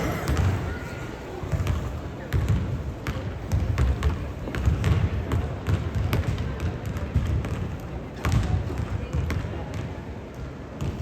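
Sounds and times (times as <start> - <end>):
basketball dribbling on gym floor: 1.5 - 9.9.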